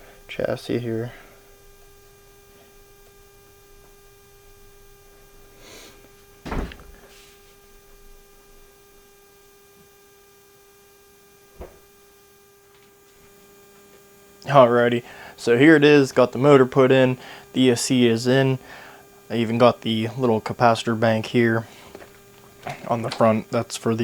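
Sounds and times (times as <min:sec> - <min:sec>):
electrical hum: 0:00.0 - 0:24.0
heavy thump: 0:06.4 - 0:07.1, 0:11.5 - 0:11.9.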